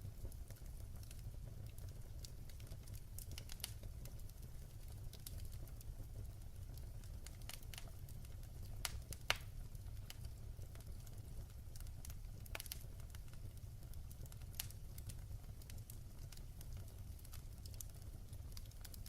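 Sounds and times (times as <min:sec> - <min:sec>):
fire pops and snaps: 0:00.0 - 0:19.0
fire rumbling in a fireplace: 0:00.0 - 0:19.0.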